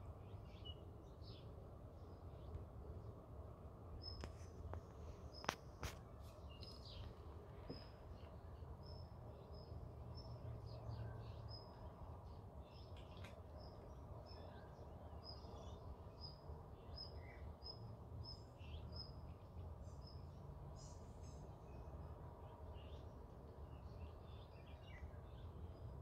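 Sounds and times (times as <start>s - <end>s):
bird chirping: 0.1s - 2.6s, 4.0s - 21.9s.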